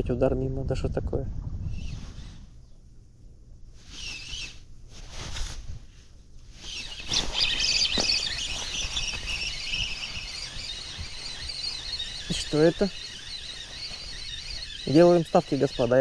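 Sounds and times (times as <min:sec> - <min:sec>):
small birds chirping: 0:01.7 - 0:02.9, 0:03.8 - 0:04.7, 0:06.5 - 0:16.0.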